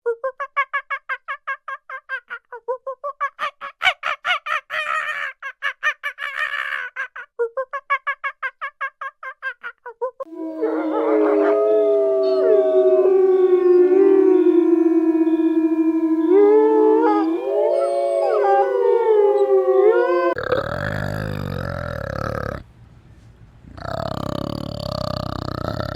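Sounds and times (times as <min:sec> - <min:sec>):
long wavering bird cries: 0:10.3 - 0:20.4.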